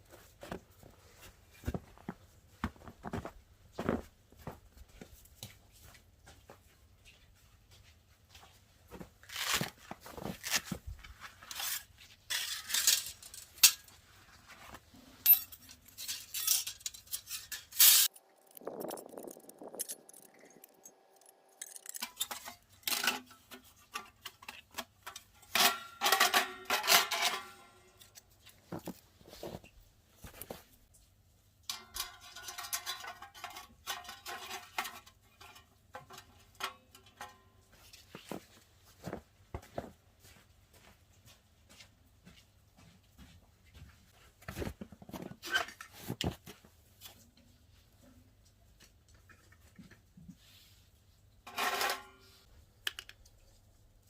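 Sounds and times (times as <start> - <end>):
metal cookware clinking and scraping: 11.5 - 14.0, 15.2 - 28.1, 31.6 - 38.0, 51.5 - 52.5.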